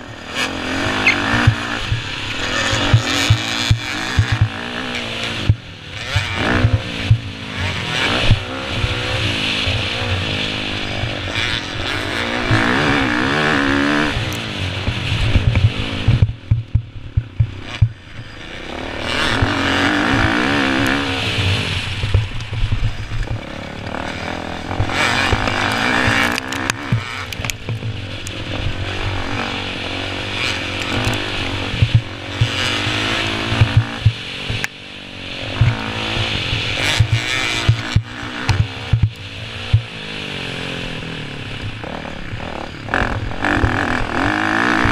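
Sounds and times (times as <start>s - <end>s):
dirt bike engine revving: 0.0s - 44.9s
low thumps: 14.8s - 18.2s.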